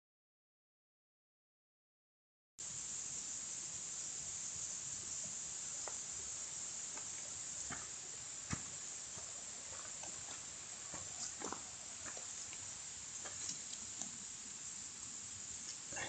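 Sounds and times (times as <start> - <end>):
insect chorus hissing: 2.6 - 16.0
faint ticks and clicks: 5.2 - 6.2, 6.8 - 14.4, 15.0 - 16.0.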